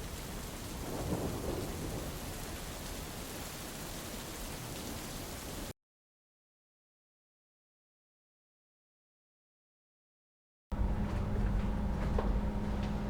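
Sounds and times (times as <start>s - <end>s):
steady rain hiss: 0.0s - 5.7s
thunder rumble: 0.0s - 5.7s.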